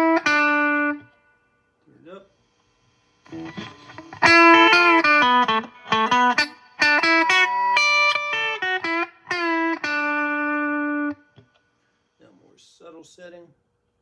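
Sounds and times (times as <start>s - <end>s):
clean electric guitar notes: 3.3s - 11.2s.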